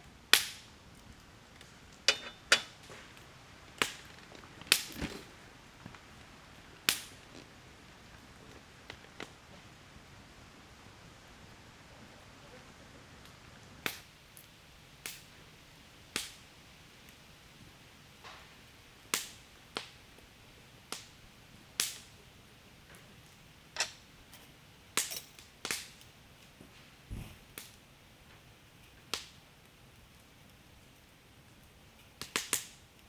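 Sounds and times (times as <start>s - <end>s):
firewood crackling and popping: 0.0s - 33.0s.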